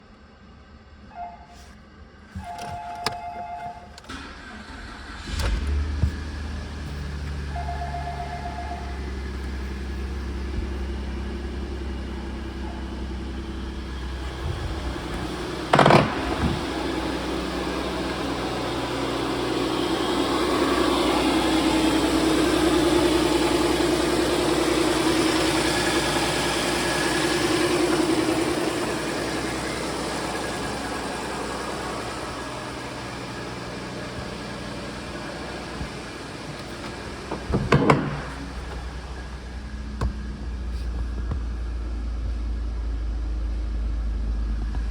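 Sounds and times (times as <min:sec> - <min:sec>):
truck engine idling: 0:00.4 - 0:44.9.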